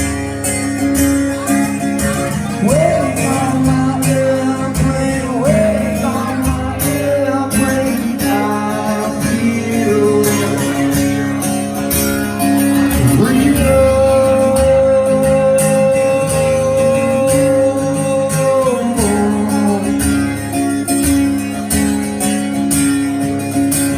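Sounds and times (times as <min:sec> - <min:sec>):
acoustic guitar strumming: 0:00.0 - 0:23.9
person singing: 0:02.0 - 0:11.3, 0:12.8 - 0:20.2.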